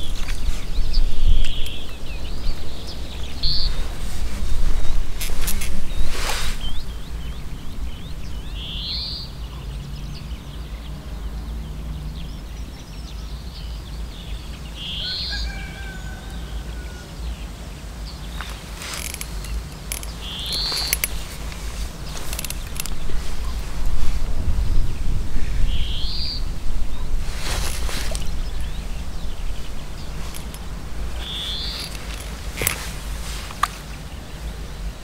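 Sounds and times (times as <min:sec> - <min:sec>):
fishing pole handling rustles: 0:00.0 - 0:01.8, 0:03.4 - 0:06.8, 0:18.4 - 0:24.5, 0:27.1 - 0:34.5
bird short high calls: 0:14.7 - 0:17.2, 0:18.4 - 0:23.6, 0:25.4 - 0:33.9.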